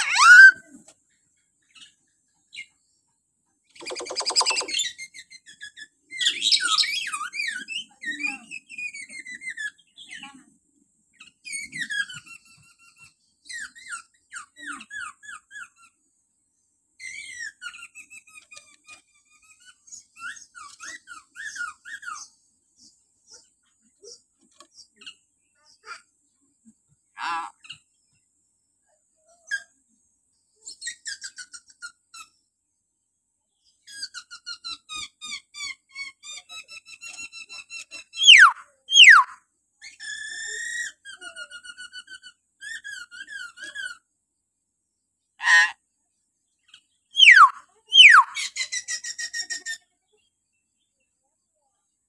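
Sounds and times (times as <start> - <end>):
myna chattering calls: 3.8 - 4.9, 27.2 - 27.6, 38.2 - 39.4, 45.4 - 45.8, 47.2 - 48.6
sharp whistles sliding down: 47.2 - 48.3.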